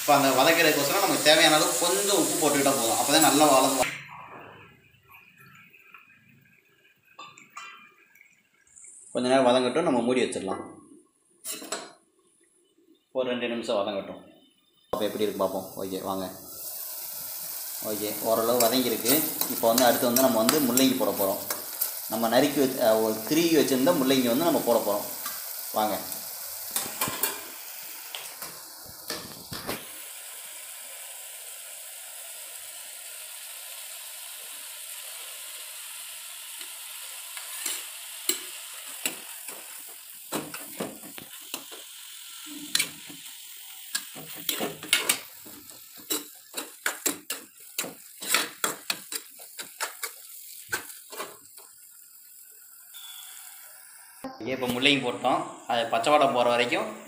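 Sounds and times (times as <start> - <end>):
oil hissing in a pan: 0.0 - 3.9, 14.9 - 57.0
steel spoon scraping a pan: 37.3 - 39.8, 43.9 - 45.3, 45.9 - 51.4.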